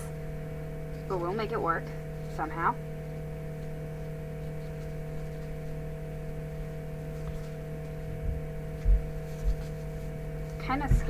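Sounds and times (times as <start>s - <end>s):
electrical hum: 0.0s - 11.0s
soft low bump: 8.0s - 10.0s, 10.6s - 11.0s.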